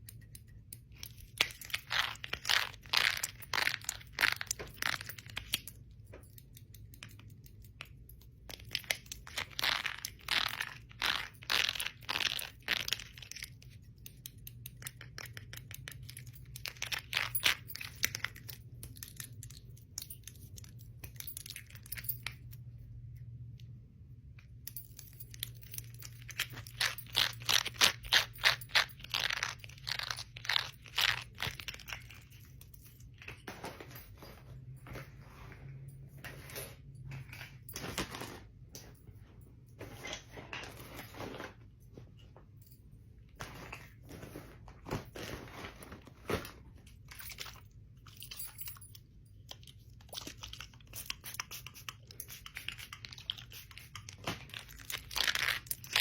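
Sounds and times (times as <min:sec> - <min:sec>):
bangles and rings clinking: 0:00.1 - 0:23.5, 0:24.3 - 0:38.0, 0:47.0 - 0:51.3.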